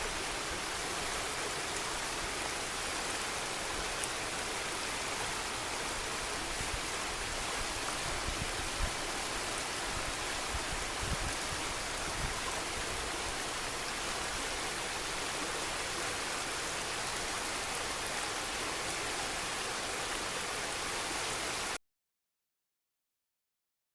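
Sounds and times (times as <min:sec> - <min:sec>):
river water rushing: 0:00.0 - 0:21.8.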